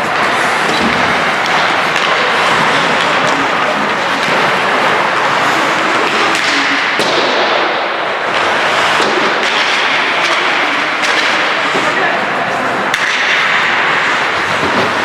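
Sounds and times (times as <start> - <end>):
hockey sticks and puck clacking: 0.0 - 15.0
skate blades scraping ice: 0.0 - 15.0.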